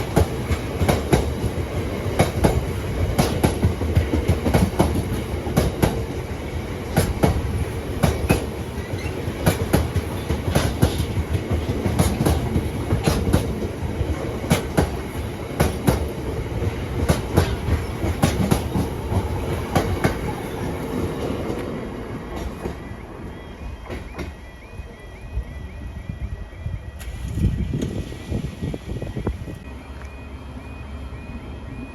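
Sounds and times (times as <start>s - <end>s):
wheels clacking over rail joints: 0.0s - 22.9s
freight train rolling past: 0.0s - 31.9s.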